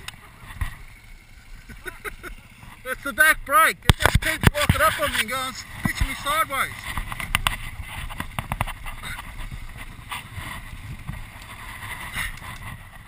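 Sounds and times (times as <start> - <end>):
dirt bike engine running: 0.0 - 13.0
sharp knocks and clicks: 6.9 - 8.8
wind buffeting microphone: 6.9 - 13.0.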